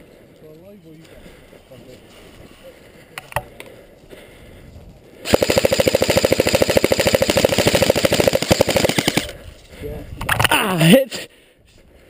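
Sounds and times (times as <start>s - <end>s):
airsoft gun full-auto firing: 5.2s - 9.4s.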